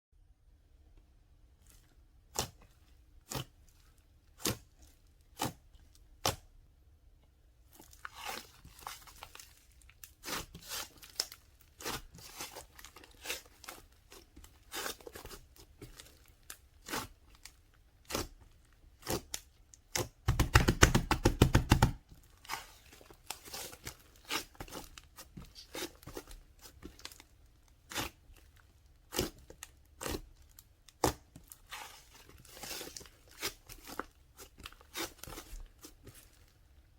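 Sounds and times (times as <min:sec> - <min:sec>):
crunching and crackling: 0:07.7 - 0:19.2, 0:22.1 - 0:36.8.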